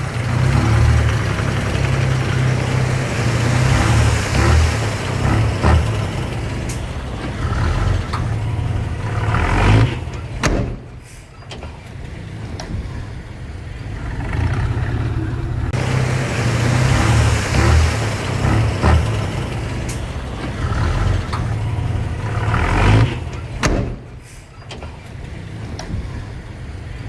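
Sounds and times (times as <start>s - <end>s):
diesel machinery engine running: 0.0s - 27.0s
sharp knocks: 23.6s - 24.1s.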